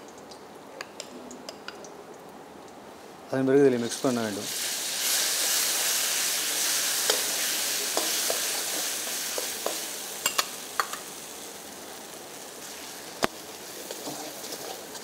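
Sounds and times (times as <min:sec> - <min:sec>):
paste sizzling in hot oil: 0:03.8 - 0:15.0
spatula scraping and tapping pan: 0:07.9 - 0:11.1.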